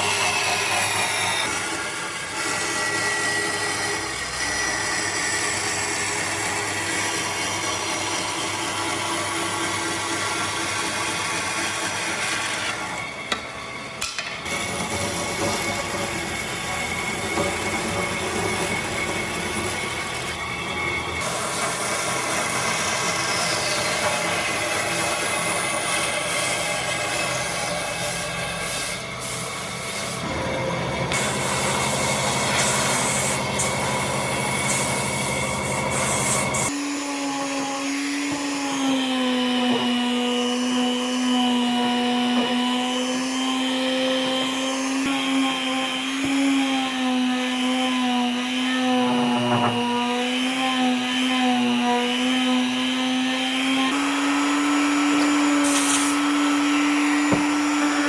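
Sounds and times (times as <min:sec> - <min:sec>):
power tool grinding wood: 0:00.0 - 0:58.0.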